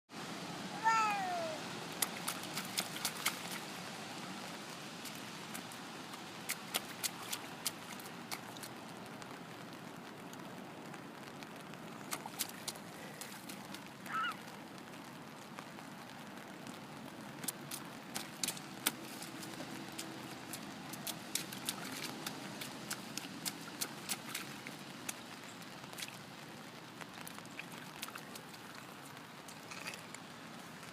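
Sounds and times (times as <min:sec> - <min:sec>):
child squealing: 0:00.8 - 0:01.6, 0:14.1 - 0:14.4
stamping splashes in puddle: 0:01.9 - 0:03.8, 0:05.0 - 0:08.8, 0:12.1 - 0:14.3, 0:17.3 - 0:25.3, 0:25.9 - 0:26.2, 0:27.2 - 0:30.2.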